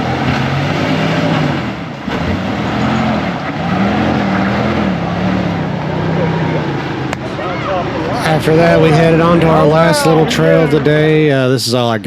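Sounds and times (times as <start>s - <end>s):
off-road vehicle engine revving: 0.0s - 11.8s.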